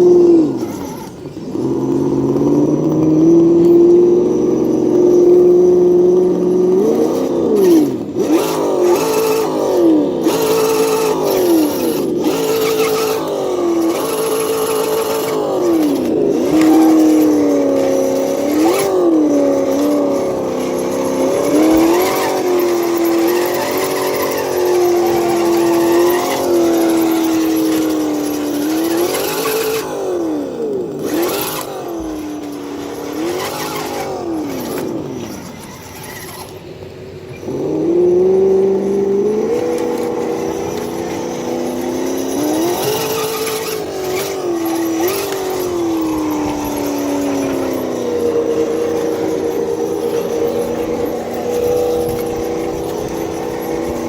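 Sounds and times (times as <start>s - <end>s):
simulated engine revving from speaker: 0.0s - 54.0s.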